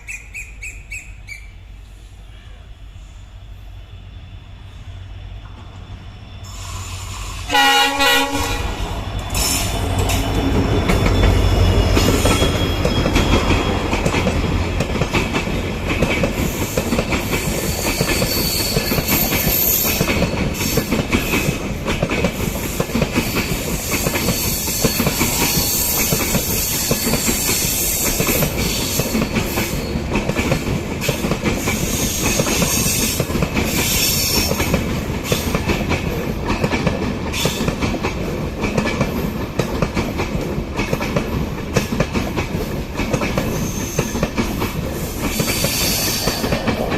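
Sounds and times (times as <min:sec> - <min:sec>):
train rushing past: 0:00.0 - 0:46.9
train horn blast: 0:07.3 - 0:09.6
wheels clacking over rail joints: 0:08.3 - 0:46.9.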